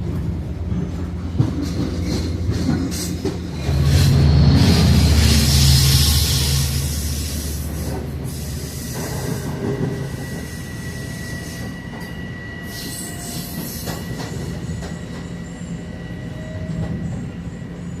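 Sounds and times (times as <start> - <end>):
train rumble: 0.0 - 18.0
high whine from wheels: 3.6 - 13.4.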